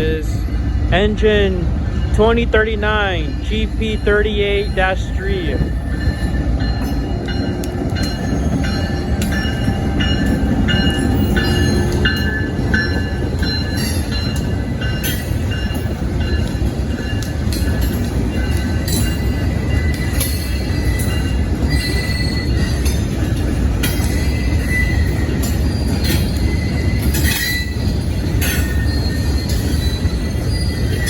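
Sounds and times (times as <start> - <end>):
freight train rumbling: 0.0 - 31.0
wheel squeals: 18.9 - 23.0, 23.8 - 31.0.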